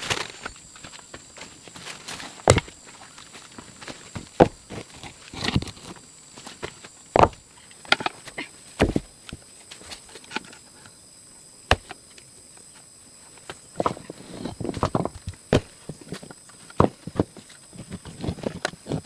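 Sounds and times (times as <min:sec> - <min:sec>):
knocks and thuds: 0:02.4 - 0:02.8, 0:07.2 - 0:07.4.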